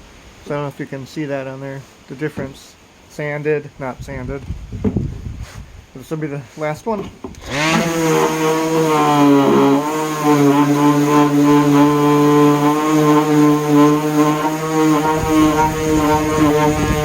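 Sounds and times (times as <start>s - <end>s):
orbital sander running on wood: 7.4s - 17.0s.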